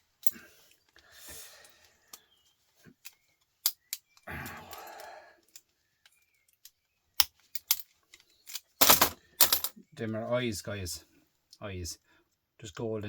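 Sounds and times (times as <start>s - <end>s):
small parts clicking and clinking: 3.0s - 9.8s.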